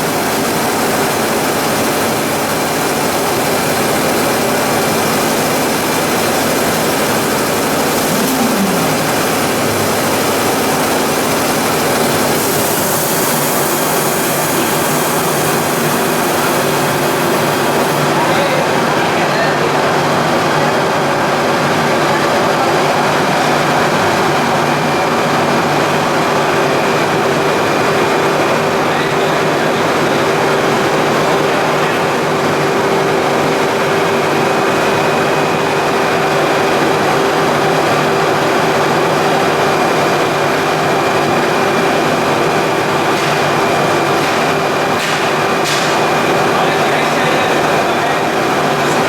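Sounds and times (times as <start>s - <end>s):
pelletizing machinery running: 0.0s - 49.0s
faint high whine: 7.5s - 11.4s.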